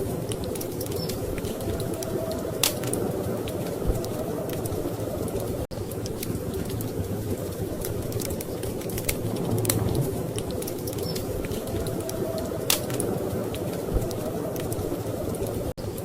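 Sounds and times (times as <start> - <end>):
wood fire crackling: 0.0 - 16.0
storm wind rushing: 7.0 - 15.7.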